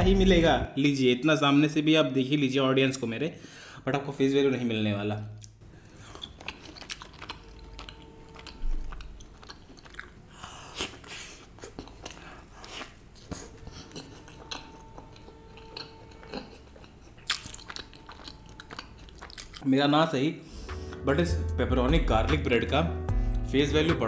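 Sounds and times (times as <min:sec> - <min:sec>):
chewing and biting bread: 0:05.8 - 0:19.6.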